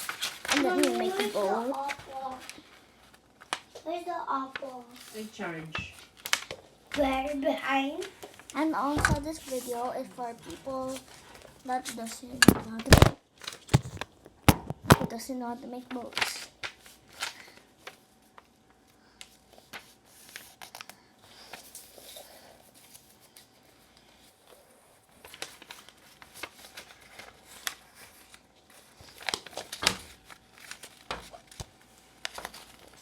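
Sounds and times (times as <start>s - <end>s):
paper crackling: 0.0s - 33.0s
paper rustling and crinkling: 0.0s - 33.0s.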